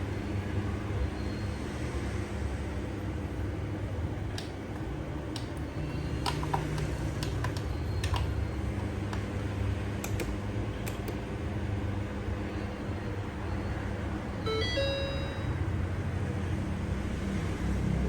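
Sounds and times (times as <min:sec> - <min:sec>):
steady low hum: 0:08.0 - 0:17.2.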